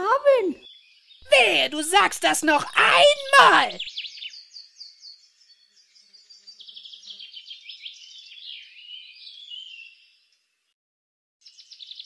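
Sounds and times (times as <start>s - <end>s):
birds chirping and trilling: 0.5s - 1.2s, 3.8s - 10.6s, 11.4s - 12.0s.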